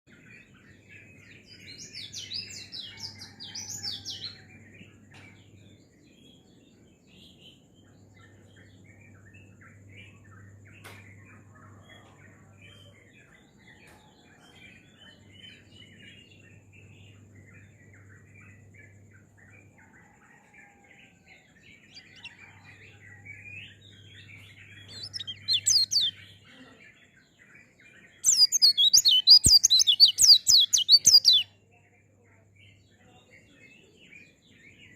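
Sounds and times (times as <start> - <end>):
songbird twittering: 15.1 - 26.4, 28.1 - 31.6
soft bird chattering: 24.8 - 26.8, 28.2 - 31.5.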